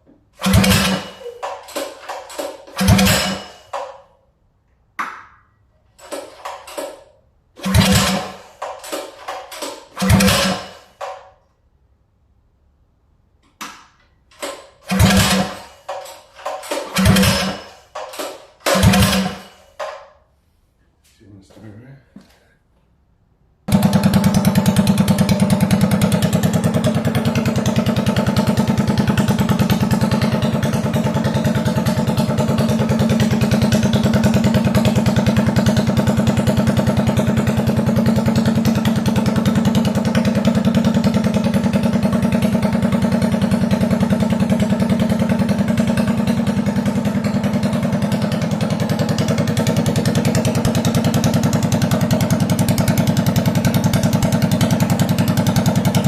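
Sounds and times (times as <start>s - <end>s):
mini bike engine running: 0.4s - 3.6s, 7.6s - 10.8s, 14.9s - 19.6s, 23.7s - 56.0s.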